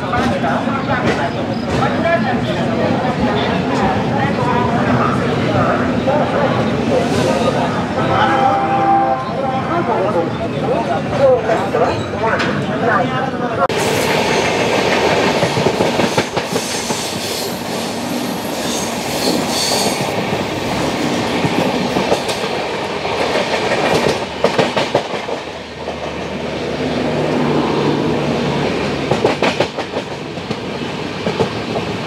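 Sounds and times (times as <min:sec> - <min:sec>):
train wheels clattering over rail joints: 0:28.8 - 0:32.0.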